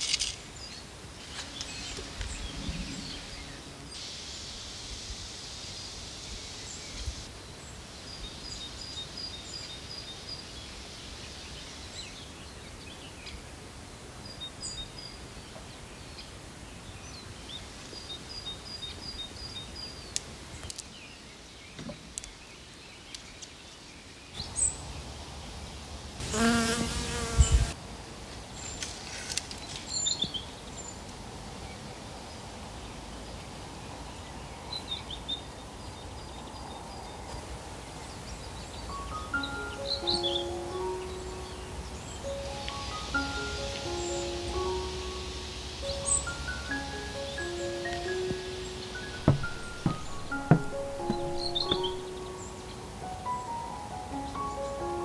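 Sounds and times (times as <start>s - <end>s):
fly buzzing: 26.2s - 27.8s, 46.1s - 52.2s
small birds calling: 38.6s - 55.0s.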